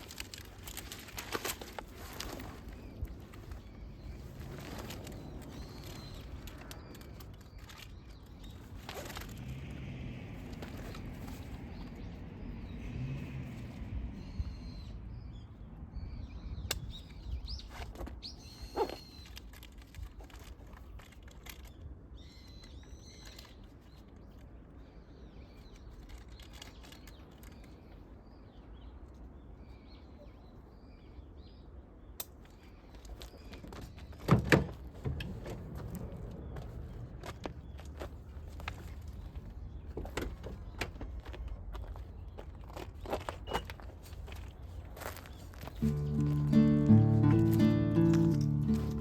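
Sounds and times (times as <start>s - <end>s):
small birds chirping: 2.2s - 9.4s, 10.7s - 34.2s.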